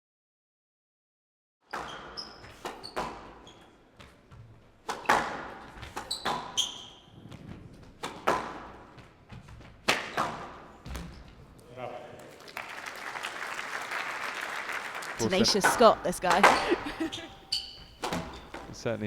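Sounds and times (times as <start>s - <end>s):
shoes squeaking on court floor: 1.7s - 11.5s, 15.2s - 19.0s
squash ball cracks: 9.9s - 10.4s, 15.6s - 18.8s.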